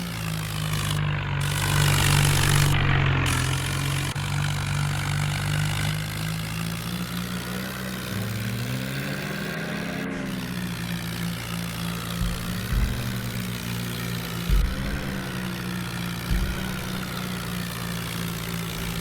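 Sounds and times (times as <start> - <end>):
tractor diesel engine running: 0.0 - 19.0
low bumps: 0.9 - 5.4, 10.1 - 19.0.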